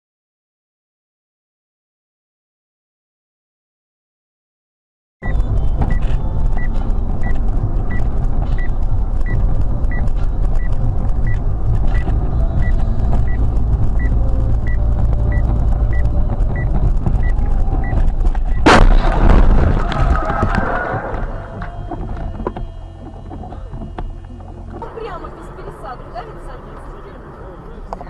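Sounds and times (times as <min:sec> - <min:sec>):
car low rumble: 0:05.2 - 0:28.0
loud crash: 0:17.0 - 0:22.5.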